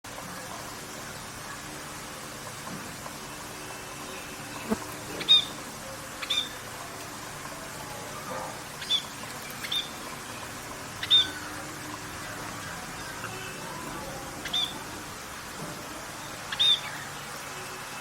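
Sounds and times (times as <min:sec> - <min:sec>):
parrots chirping: 0:08.8 - 0:10.0, 0:10.9 - 0:11.7, 0:14.3 - 0:14.9.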